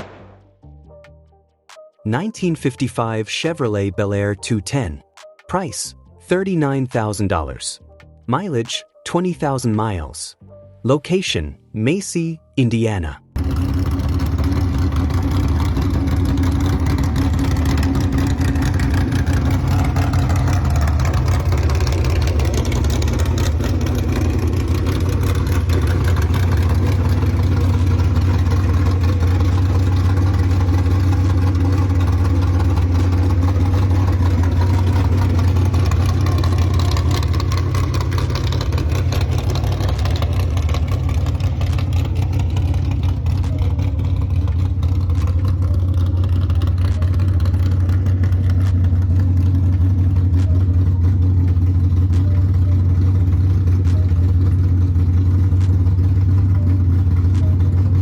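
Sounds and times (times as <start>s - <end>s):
car engine running deep: 13.4s - 58.0s.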